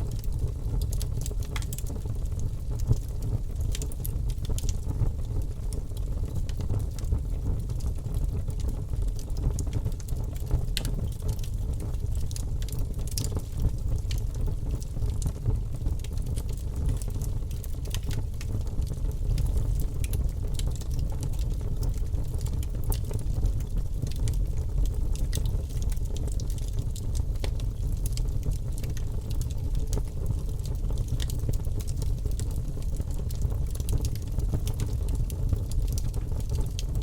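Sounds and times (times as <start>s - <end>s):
wood fire crackling and popping: 0.0s - 37.0s
low rush of flames: 10.9s - 37.0s.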